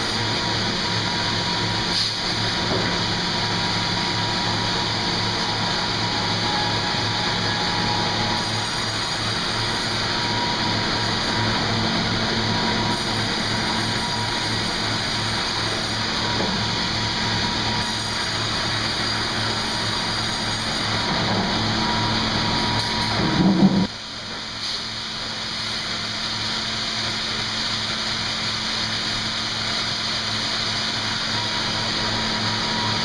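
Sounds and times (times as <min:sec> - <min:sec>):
sawmill machinery humming: 0:00.0 - 0:33.0.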